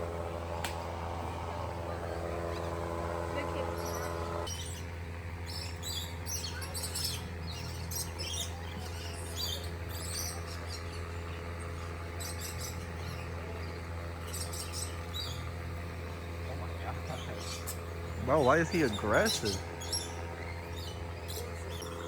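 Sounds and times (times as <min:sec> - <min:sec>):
steady low hum: 0:00.0 - 0:04.6, 0:09.8 - 0:22.0
parrots chirping and calling: 0:17.1 - 0:22.0.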